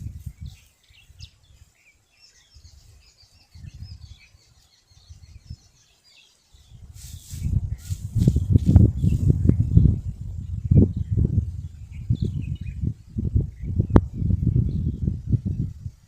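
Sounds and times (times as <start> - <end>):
small birds chirping: 0.0 - 16.0
low rumbling gusts: 6.8 - 16.0.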